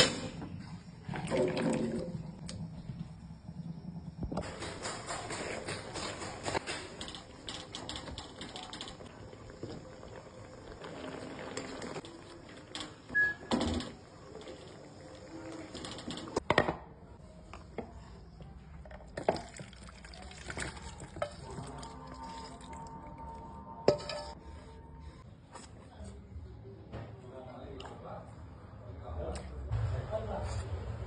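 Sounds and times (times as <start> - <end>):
water in a pot: 0.9 - 3.2, 6.7 - 16.4, 18.8 - 24.4.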